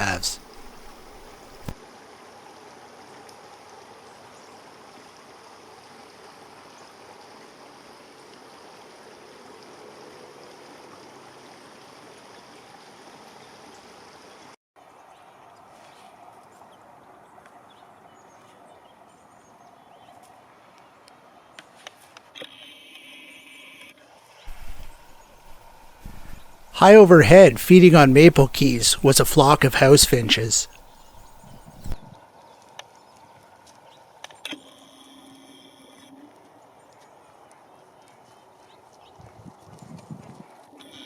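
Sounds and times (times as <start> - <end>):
rushing outdoor ambience: 0.0 - 1.8, 24.5 - 32.1.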